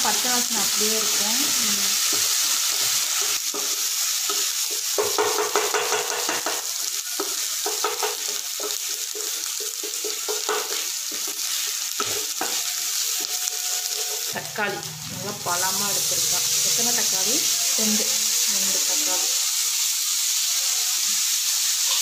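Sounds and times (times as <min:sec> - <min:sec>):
onions sizzling in hot oil: 0:00.0 - 0:22.0
wooden spatula scraping pan: 0:10.7 - 0:14.3.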